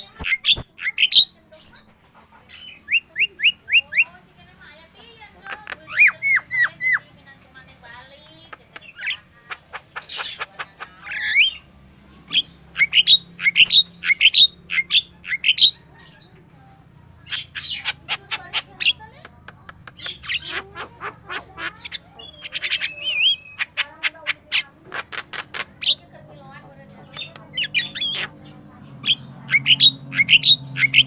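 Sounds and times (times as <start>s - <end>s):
bulbul singing: 0.0s - 1.9s, 8.6s - 16.5s, 19.8s - 31.0s.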